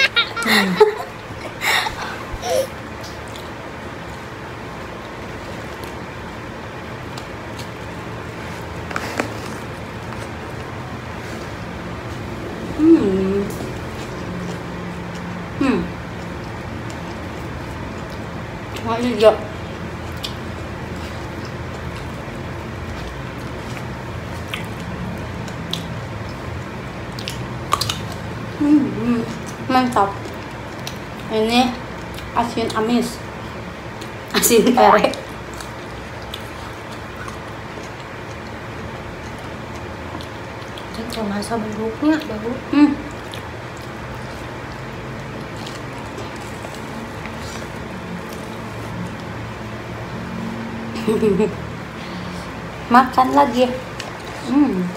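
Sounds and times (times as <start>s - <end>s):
people eating and chewing: 0.0s - 50.9s, 51.6s - 54.9s
low rumble and hiss: 0.0s - 54.9s
steady low hum: 0.0s - 54.9s
mouth chewing: 20.0s - 28.3s, 35.1s - 42.4s, 43.0s - 49.4s.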